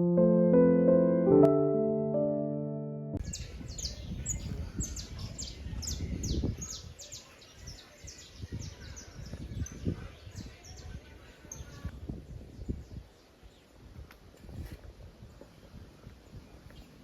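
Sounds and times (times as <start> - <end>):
birds chirping: 3.2 - 11.9.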